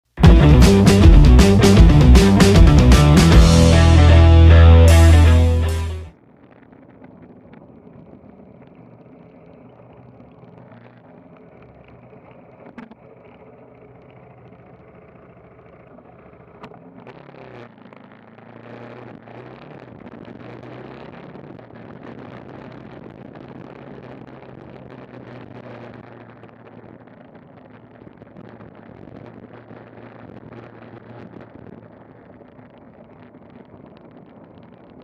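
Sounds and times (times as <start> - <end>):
motorcycle engine running: 0.2 - 6.1
rock music: 0.2 - 6.1.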